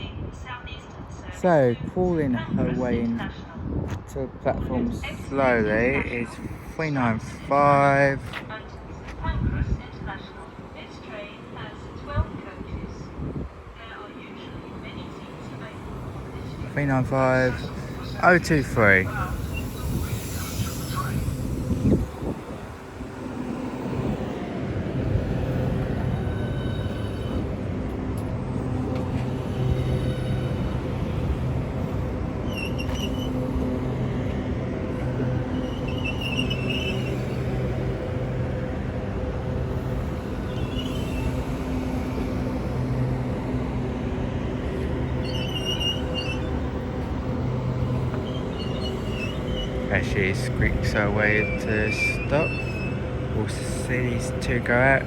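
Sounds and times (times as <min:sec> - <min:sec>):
train humming: 0:00.0 - 0:55.0
faint high whines: 0:13.3 - 0:55.0
brake squeal: 0:15.0 - 0:55.0.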